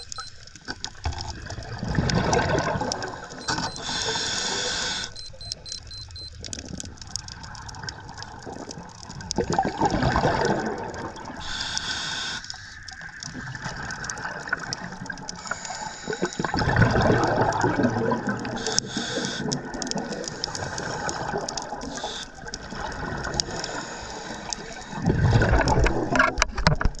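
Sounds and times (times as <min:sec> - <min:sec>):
rush of exhaust bubbles: 0:01.4 - 0:03.2, 0:09.4 - 0:11.4, 0:16.4 - 0:18.6, 0:25.0 - 0:26.2
hissing regulator inhale: 0:03.2 - 0:05.3, 0:11.4 - 0:12.9, 0:15.4 - 0:16.6, 0:18.6 - 0:19.6, 0:20.2 - 0:22.5, 0:23.4 - 0:25.1.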